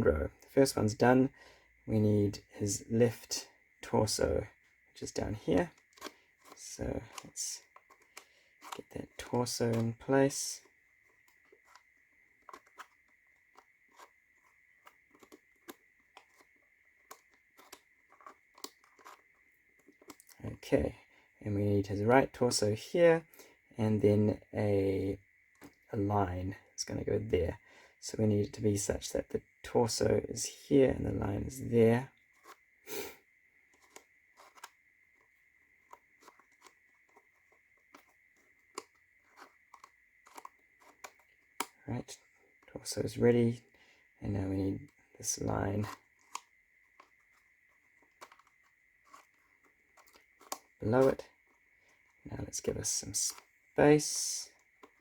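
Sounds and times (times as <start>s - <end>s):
wooden tiles clicking and sliding: 5.0s - 20.4s, 32.3s - 33.1s, 33.7s - 41.8s, 44.7s - 55.0s.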